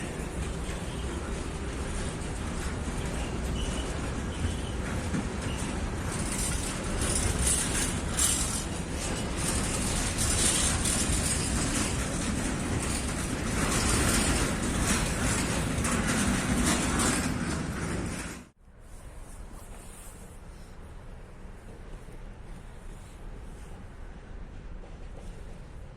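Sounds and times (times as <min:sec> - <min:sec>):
freight train rolling past: 0:00.0 - 0:18.6, 0:21.1 - 0:25.9
wheels on rails rattling: 0:00.0 - 0:18.6.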